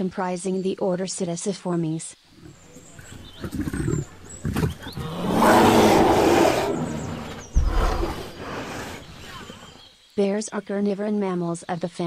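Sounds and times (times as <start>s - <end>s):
bear growling and roaring: 2.4s - 9.8s
deep thump: 7.0s - 8.4s.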